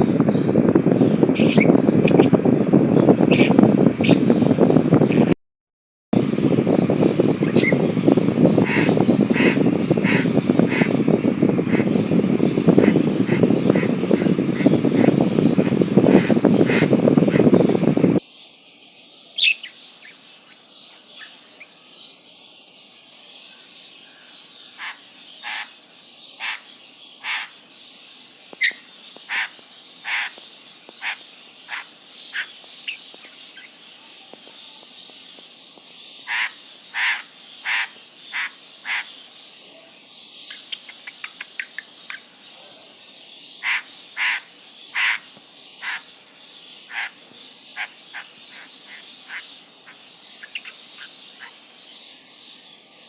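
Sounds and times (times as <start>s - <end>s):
steady high hiss: 6.2s - 53.0s
bird giving sharp calls: 8.4s - 12.1s, 12.7s - 17.7s, 28.6s - 30.4s, 36.3s - 39.2s, 43.6s - 46.1s, 46.9s - 51.6s.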